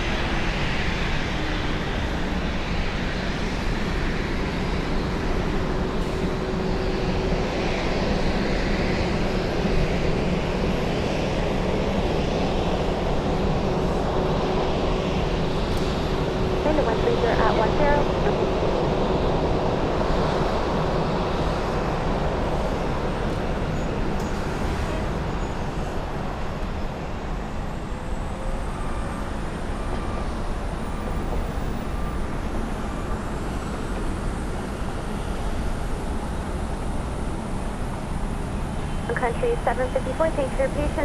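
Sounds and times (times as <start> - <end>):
jet airliner landing: 0.1 - 20.0, 38.7 - 41.0.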